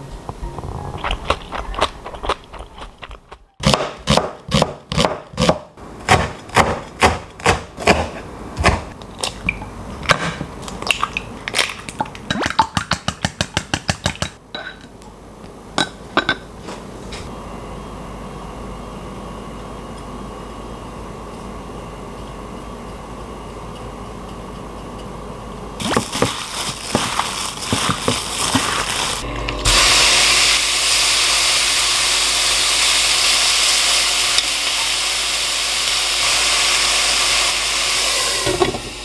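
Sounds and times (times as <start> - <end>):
knife chopping on cutting board: 3.6 - 8.9.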